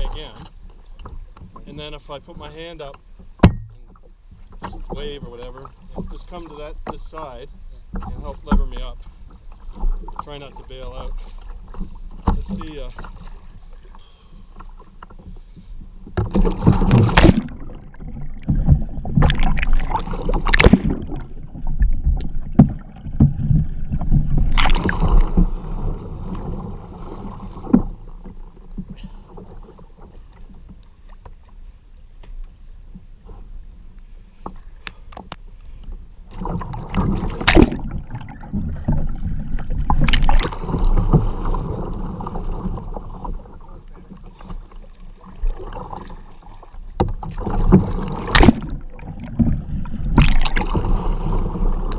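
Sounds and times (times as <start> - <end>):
water lapping: 0.0 - 31.8, 32.9 - 51.9
loud water splashes: 16.2 - 27.7, 36.4 - 39.1, 39.7 - 42.2, 47.3 - 51.9.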